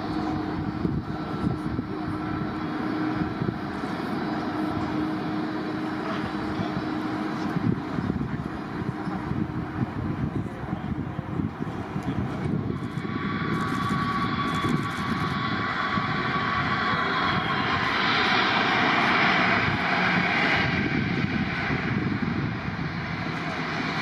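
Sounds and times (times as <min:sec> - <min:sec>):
jet airliner passing: 0:00.0 - 0:24.0
thin whine: 0:11.4 - 0:24.0.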